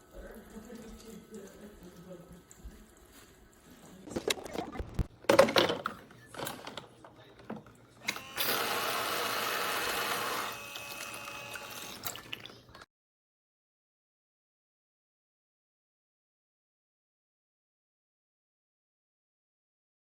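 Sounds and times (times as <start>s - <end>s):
water splashing: 4.0s - 5.1s
toy faucet pump whirring: 8.0s - 12.8s.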